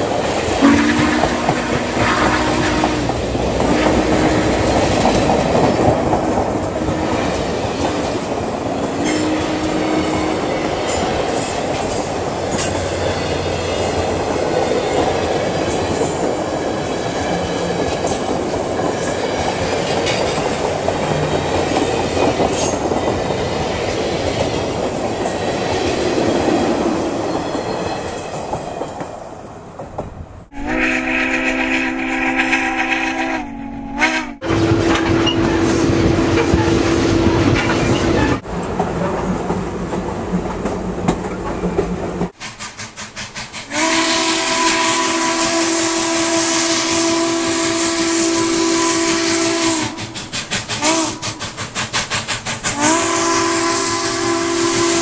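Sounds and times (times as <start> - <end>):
train cars clickety-clack: 0.0 - 55.0
steam whistle blasts: 0.6 - 4.8, 30.5 - 38.4, 43.7 - 51.7, 52.7 - 55.0.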